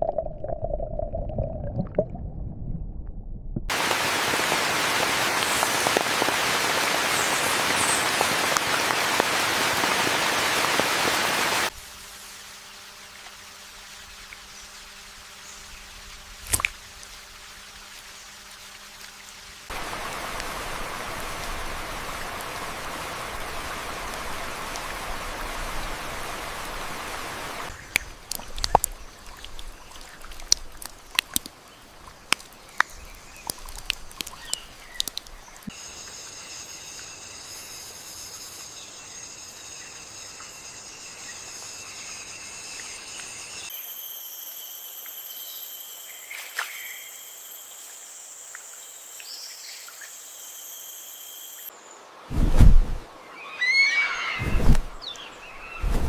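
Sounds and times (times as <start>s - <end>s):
rain falling: 3.7s - 11.7s, 19.7s - 31.5s, 32.4s - 35.7s
water drips and ticks: 3.7s - 11.7s, 27.7s - 35.7s
insects shrilling: 27.7s - 30.8s, 32.8s - 51.7s.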